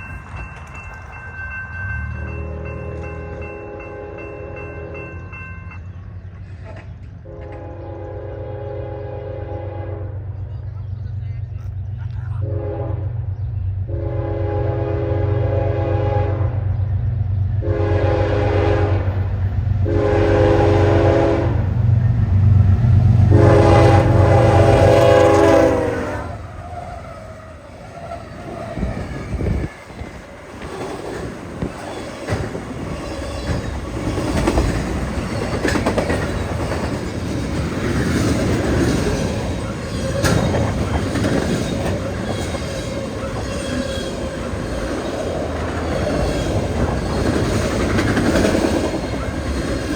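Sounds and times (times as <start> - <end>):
locomotive engine rumble: 0.0 - 49.9
diesel locomotive horn blasts: 2.2 - 5.3, 7.2 - 10.4, 12.4 - 16.9, 17.5 - 30.2
train wheels clacking over joints: 27.8 - 49.9.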